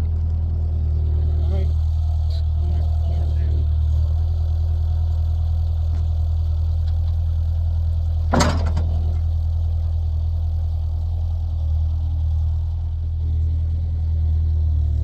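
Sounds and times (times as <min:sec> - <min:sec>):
engine running at low speed: 0:00.0 - 0:15.0
sharp metallic clank: 0:08.3 - 0:09.1.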